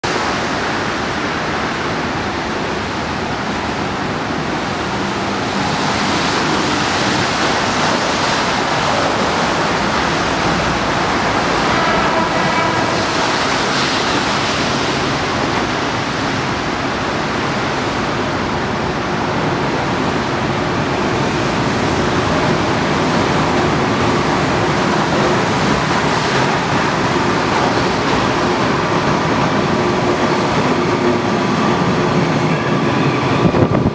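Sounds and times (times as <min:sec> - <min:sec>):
subway train rumbling: 0:00.0 - 0:33.9.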